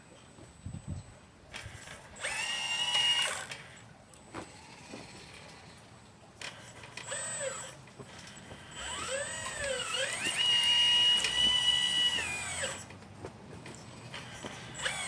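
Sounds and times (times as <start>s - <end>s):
toy excavator electric motor whine: 1.5s - 5.8s, 6.4s - 13.0s, 14.0s - 15.0s.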